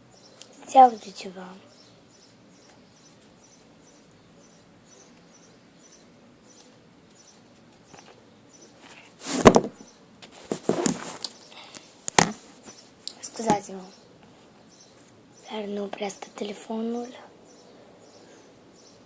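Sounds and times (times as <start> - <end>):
faint high chirping: 0.0 - 9.2
phone knocking and rustling: 9.3 - 11.2, 12.1 - 12.5.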